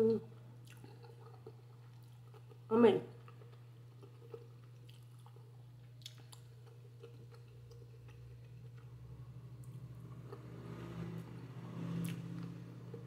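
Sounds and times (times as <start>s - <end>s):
chewing noodles: 0.6s - 10.5s.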